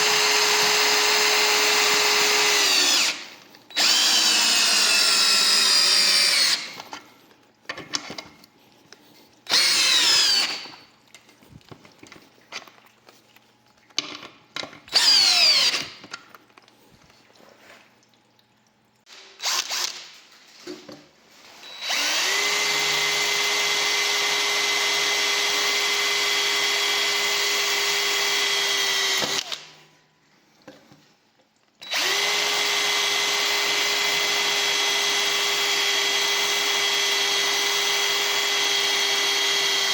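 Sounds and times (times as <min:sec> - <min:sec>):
cordless drill motor whining: 0:00.0 - 0:06.8, 0:09.5 - 0:10.7, 0:14.9 - 0:16.0, 0:21.6 - 0:29.6, 0:31.8 - 0:39.9.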